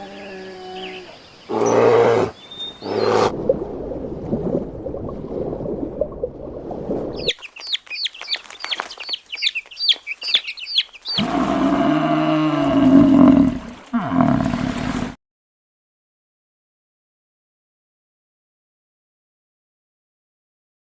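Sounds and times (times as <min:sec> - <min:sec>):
low animal calls: 0:00.0 - 0:03.4, 0:11.1 - 0:15.2.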